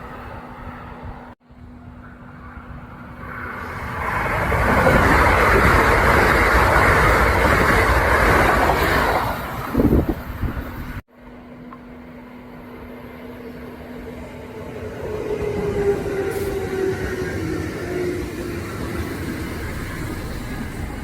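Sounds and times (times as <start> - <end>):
electric train passing: 0.0 - 21.0
rail and wheel clacks: 2.0 - 11.0, 14.5 - 21.0.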